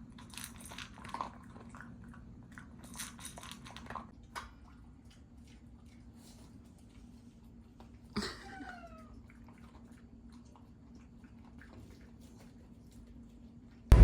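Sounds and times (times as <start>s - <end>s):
dog chewing crunchy treat: 0.0s - 8.1s.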